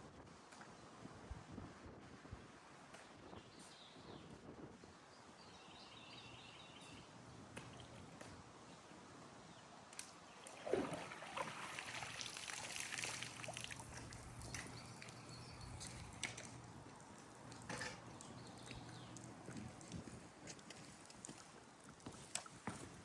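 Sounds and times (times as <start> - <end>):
water sloshing and trickling: 7.6 - 8.4, 10.0 - 23.0.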